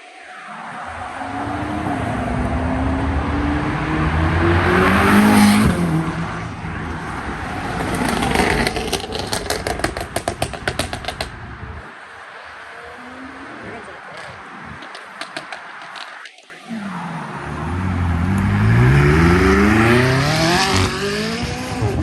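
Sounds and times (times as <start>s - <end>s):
car accelerating past: 0.4s - 8.8s, 16.5s - 22.0s.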